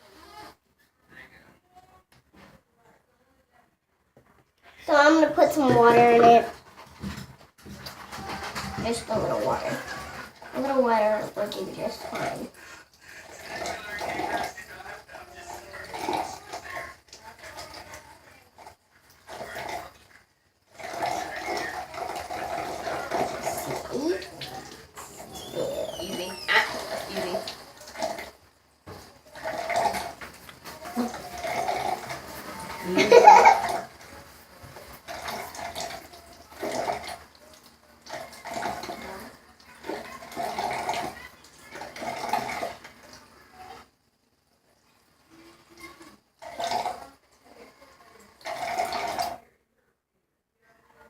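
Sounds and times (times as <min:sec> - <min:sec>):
water splashing and running: 0:04.9 - 0:43.9
dog whimpering and whining: 0:25.0 - 0:26.8.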